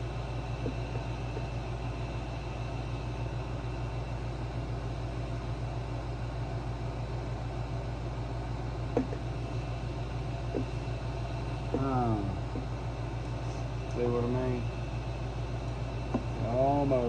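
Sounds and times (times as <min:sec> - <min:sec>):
machine hum with flutter: 0:00.0 - 0:17.0.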